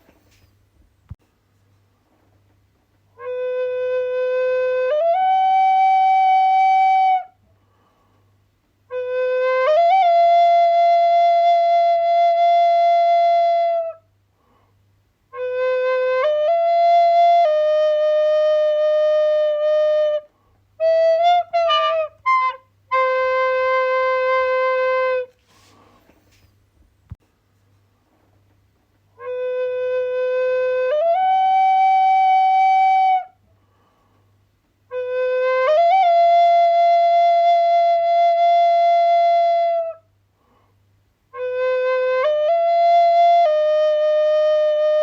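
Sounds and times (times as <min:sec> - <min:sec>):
solo flute playing long notes: 0:03.2 - 0:07.4, 0:08.9 - 0:14.1, 0:15.3 - 0:25.4, 0:29.2 - 0:33.4, 0:34.9 - 0:40.1, 0:41.3 - 0:45.0.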